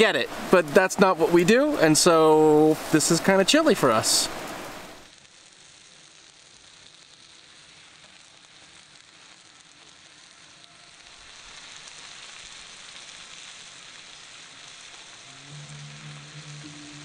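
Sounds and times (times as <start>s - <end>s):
steaks sizzling on a griddle: 5.0s - 17.0s.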